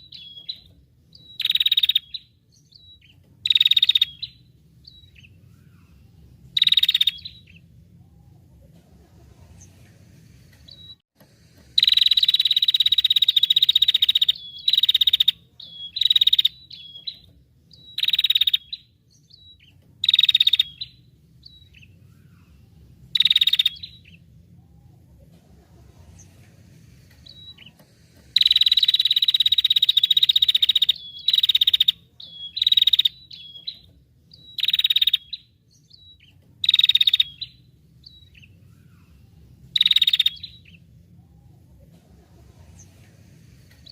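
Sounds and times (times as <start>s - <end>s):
buzzy songbird calls: 0.0s - 8.1s, 11.8s - 24.9s, 27.2s - 41.5s.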